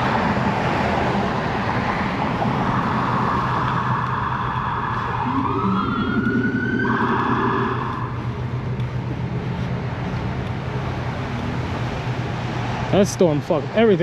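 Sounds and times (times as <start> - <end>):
city traffic noise: 0.0 - 14.0
emergency siren wailing: 2.2 - 8.6.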